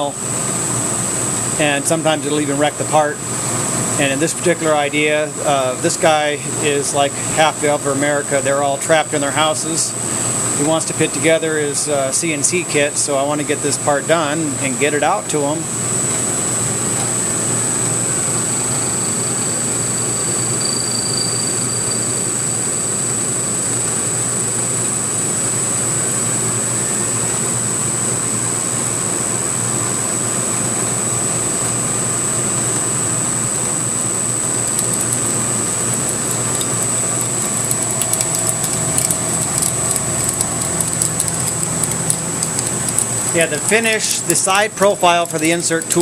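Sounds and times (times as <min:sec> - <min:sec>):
milling machine cutting metal: 0:34.4 - 0:46.0
sharp ticks: 0:34.6 - 0:44.5, 0:45.1 - 0:46.0.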